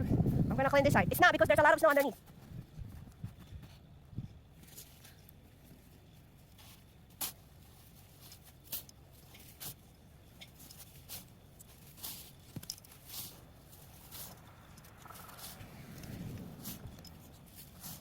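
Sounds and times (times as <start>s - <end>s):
shovel scraping snow: 10.8s - 18.0s.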